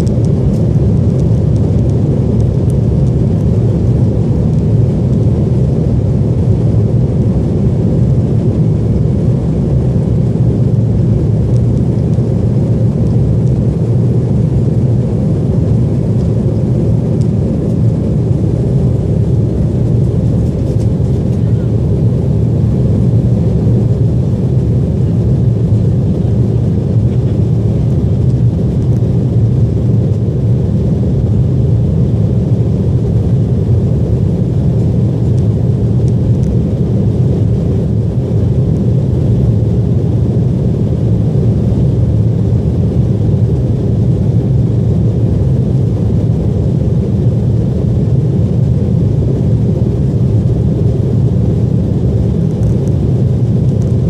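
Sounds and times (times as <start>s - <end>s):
jet engines rumbling: 0.0s - 54.0s.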